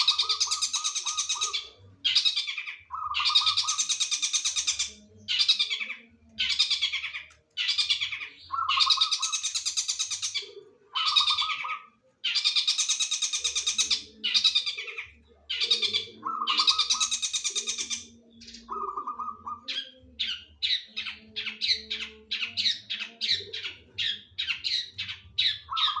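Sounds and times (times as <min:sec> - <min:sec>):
bird harsh rattling song: 0:00.0 - 0:05.9, 0:06.5 - 0:10.4, 0:11.0 - 0:14.7.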